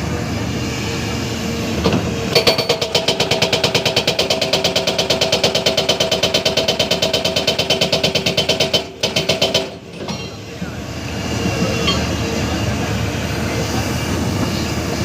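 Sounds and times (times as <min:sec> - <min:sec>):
hydraulic breaker hammering: 0:01.9 - 0:10.7.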